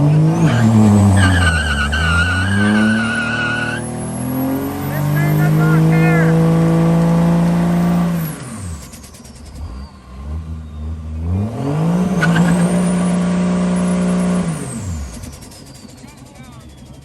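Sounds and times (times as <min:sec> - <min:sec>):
engine revving: 0:00.0 - 0:17.0
turbo whistle: 0:00.4 - 0:03.8.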